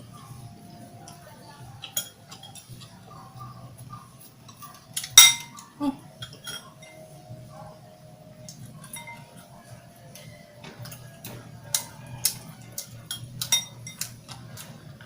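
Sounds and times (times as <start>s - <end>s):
loud tableware clink: 5.0s - 5.6s, 6.2s - 7.1s, 12.8s - 14.1s
tableware clicks and taps: 5.0s - 5.6s, 6.2s - 7.1s, 10.6s - 14.3s.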